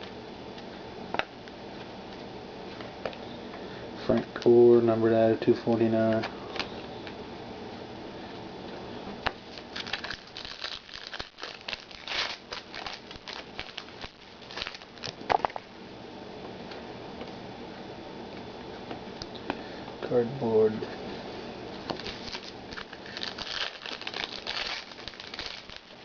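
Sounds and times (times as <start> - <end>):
faint room hum: 0.0 - 26.0
wrapper crinkling and tearing: 9.5 - 15.6, 21.9 - 26.0
cards being handled: 21.8 - 26.0.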